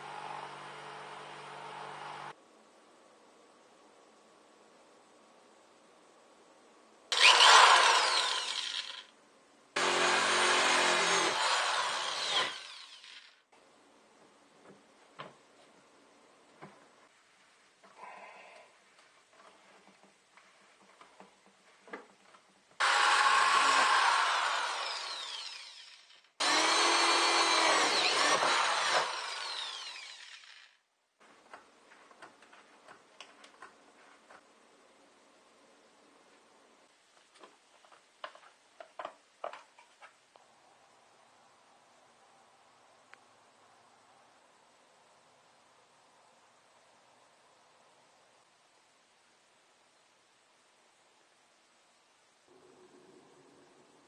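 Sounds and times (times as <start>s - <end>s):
power tool cutting: 7.1s - 9.1s, 9.8s - 13.4s, 22.8s - 30.7s.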